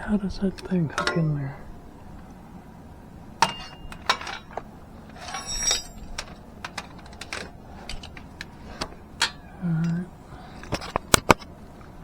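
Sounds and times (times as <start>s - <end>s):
metallic clink: 3.4s - 6.3s.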